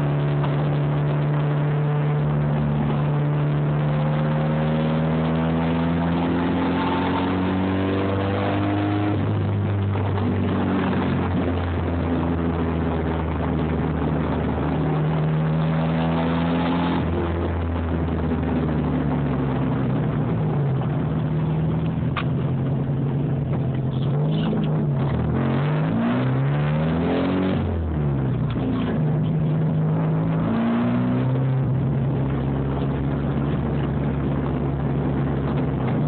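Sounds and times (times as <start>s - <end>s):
car engine revving in cabin: 0.0s - 36.0s.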